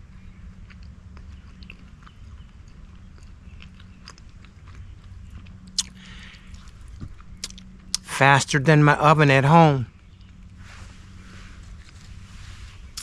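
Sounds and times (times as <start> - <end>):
person chewing: 0.6 - 8.1.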